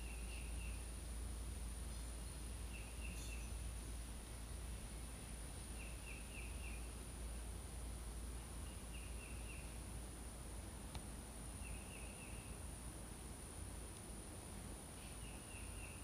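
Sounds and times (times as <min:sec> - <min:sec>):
bird chirping: 0:00.0 - 0:01.0, 0:01.9 - 0:04.0, 0:05.6 - 0:07.0, 0:08.6 - 0:09.9, 0:11.6 - 0:12.7, 0:15.0 - 0:16.0
high insect drone: 0:00.0 - 0:16.0.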